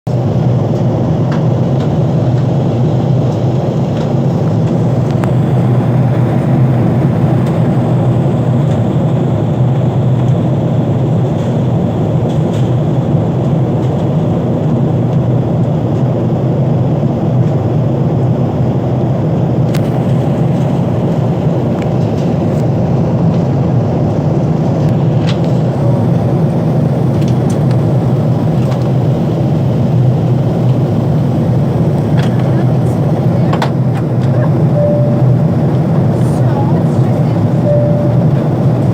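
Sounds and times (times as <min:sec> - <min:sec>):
jet engines roaring: 0:00.2 - 0:38.9
rushing air: 0:04.8 - 0:08.6.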